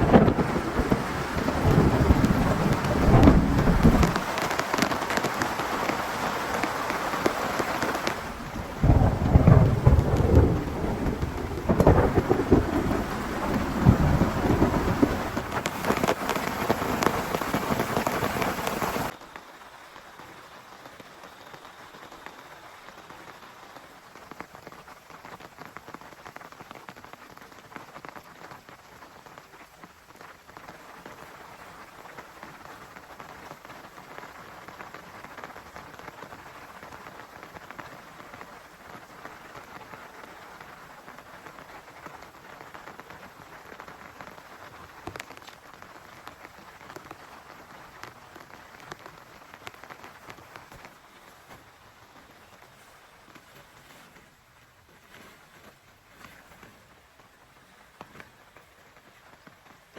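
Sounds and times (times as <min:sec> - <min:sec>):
thunder rumbling: 0:00.0 - 0:05.5, 0:06.4 - 0:19.2
heavy downpour: 0:00.0 - 0:59.9
rain pattering: 0:00.0 - 0:59.9.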